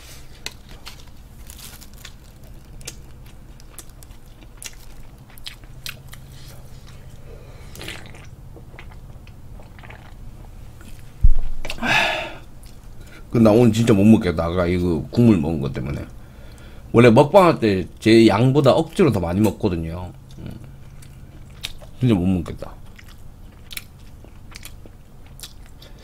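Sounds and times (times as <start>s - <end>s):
person chewing: 0.3s - 13.2s, 20.3s - 26.0s
loud thump: 11.2s - 11.8s
breathy burst: 11.7s - 13.2s.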